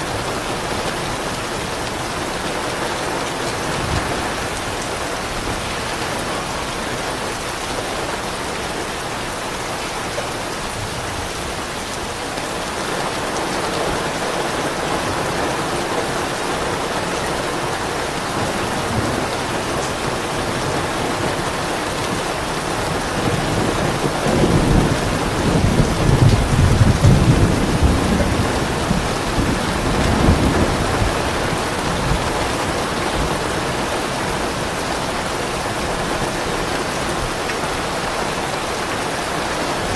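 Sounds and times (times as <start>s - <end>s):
steady rain falling: 0.0s - 39.9s
low roll of thunder: 22.7s - 33.6s.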